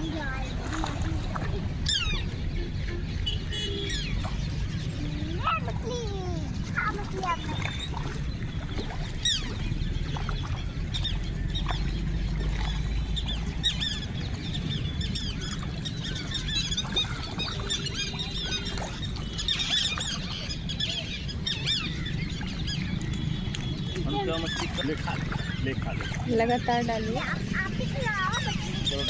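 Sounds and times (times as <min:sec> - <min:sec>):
flock of birds calling: 0:01.8 - 0:07.9, 0:12.6 - 0:29.0.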